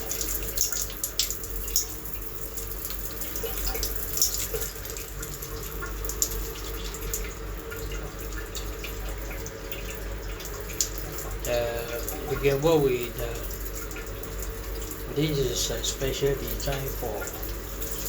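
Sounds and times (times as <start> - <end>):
water spraying from shower head: 15.2 - 18.0.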